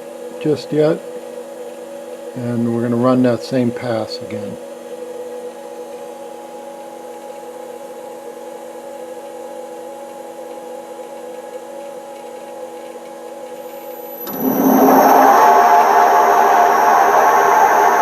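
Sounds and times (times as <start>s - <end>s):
spindle whir with high whine: 13.8s - 18.0s
lathe humming: 14.3s - 18.0s.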